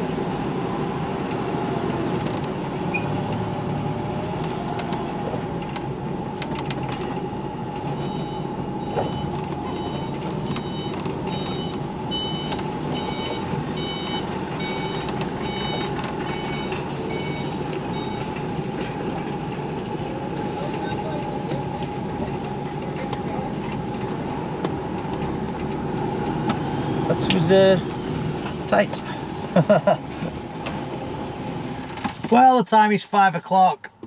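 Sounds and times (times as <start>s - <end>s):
lorry diesel engine running: 0.0s - 34.0s
reversing alarm beeping: 7.9s - 18.4s.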